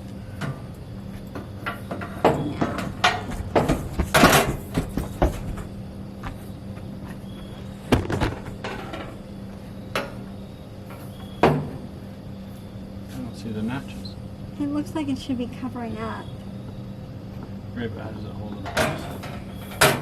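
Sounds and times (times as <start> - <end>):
grill parts knocking and clattering: 0.4 - 6.5, 7.9 - 9.2, 18.5 - 20.0.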